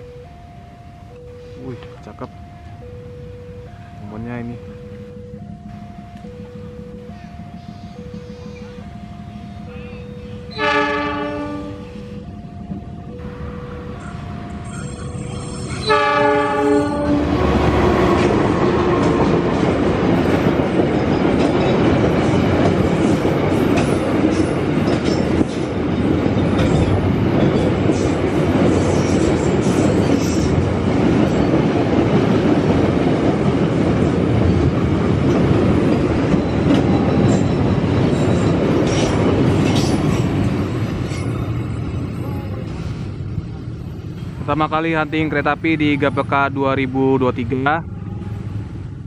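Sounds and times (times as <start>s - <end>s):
freight train rumbling past: 0.0s - 49.0s
locomotive horn: 9.6s - 12.2s, 15.6s - 19.5s, 47.8s - 48.6s
wheels clicking over rail joints: 16.8s - 42.1s.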